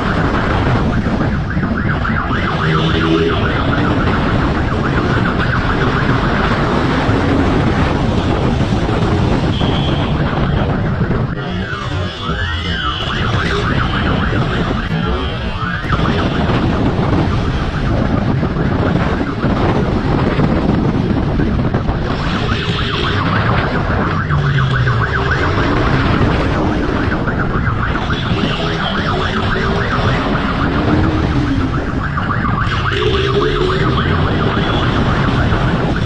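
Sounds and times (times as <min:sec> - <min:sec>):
siren wailing: 0:00.0 - 0:36.0
wind rush: 0:00.0 - 0:36.0
motorcycle engine at speed: 0:12.2 - 0:36.0.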